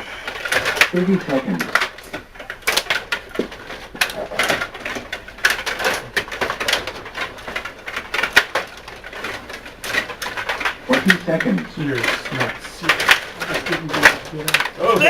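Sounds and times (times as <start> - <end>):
table hockey rods clicking: 0.0 - 15.0.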